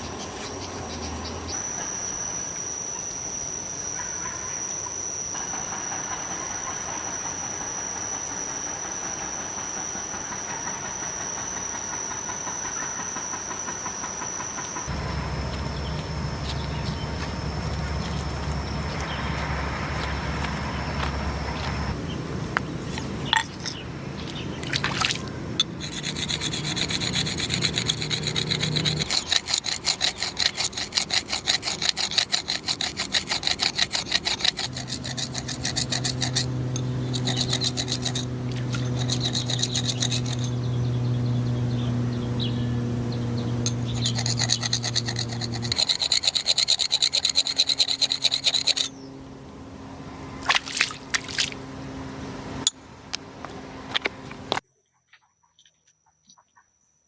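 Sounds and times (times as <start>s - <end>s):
steady low hum: 14.7s - 54.6s
rhythmic scraping on wood: 14.8s - 22.0s, 25.6s - 49.0s.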